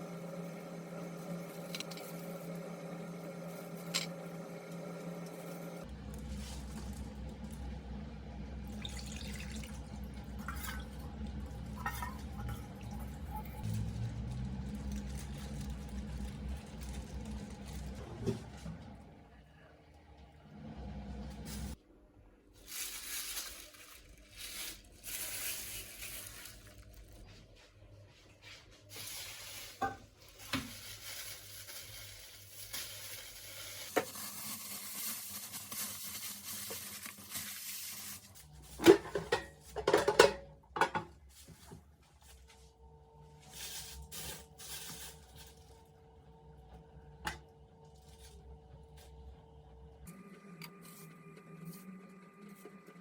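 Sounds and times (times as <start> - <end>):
low steady hum: 5.8 - 33.9
cookware and dishes clattering: 11.6 - 13.6, 38.8 - 41.1.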